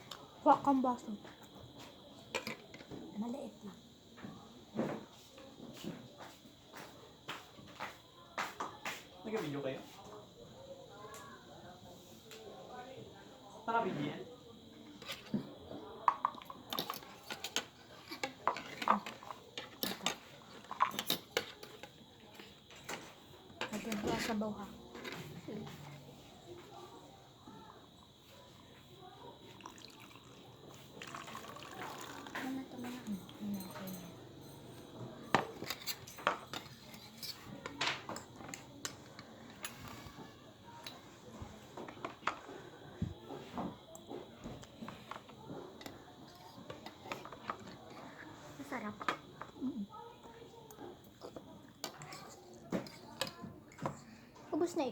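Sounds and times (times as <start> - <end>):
utensils clinking against a bowl: 14.9 - 25.9, 29.6 - 42.6, 43.4 - 49.6, 50.7 - 54.0
cutlery clinking against bowl: 16.1 - 23.0, 34.7 - 40.1.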